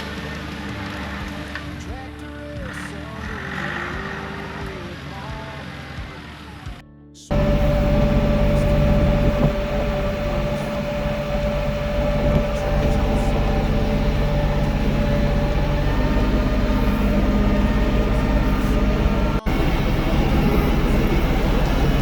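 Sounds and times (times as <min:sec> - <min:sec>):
steady whine: 0:07.3 - 0:22.0
tractor engine running: 0:07.3 - 0:22.0.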